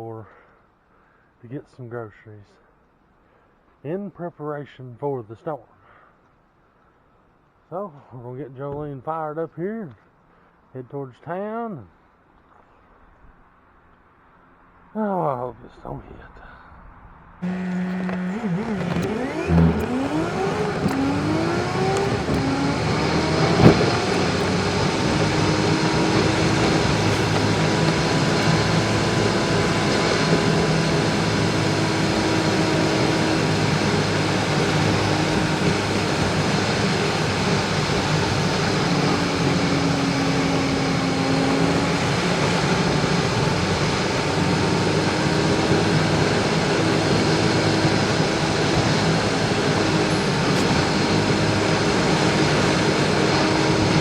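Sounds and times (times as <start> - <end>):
car engine accelerating: 17.4 - 54.0.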